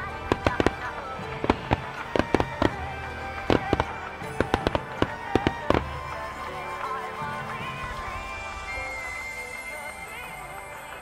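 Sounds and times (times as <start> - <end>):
fireworks bangs and crackles: 0.0 - 7.6
music playing: 0.0 - 11.0.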